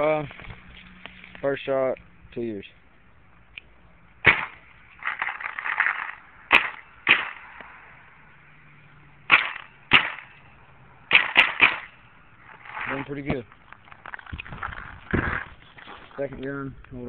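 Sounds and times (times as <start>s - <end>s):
paintball marker shots: 4.2s - 7.8s, 9.3s - 10.4s, 11.1s - 12.0s
rough crackly noise: 4.3s - 7.8s, 11.2s - 17.0s.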